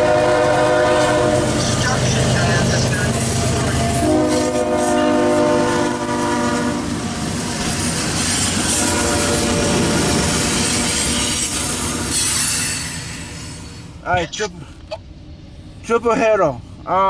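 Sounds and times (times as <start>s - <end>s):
diesel locomotive horn: 0.0s - 7.2s, 8.6s - 10.7s.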